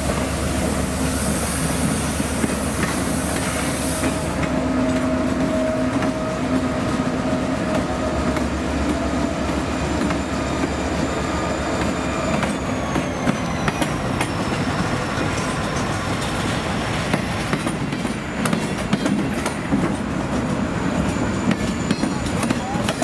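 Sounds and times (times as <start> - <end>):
locomotive engine hum: 0.0 - 23.0
wheels rumbling on rail: 0.0 - 23.0
high wheel squeal: 9.8 - 16.4.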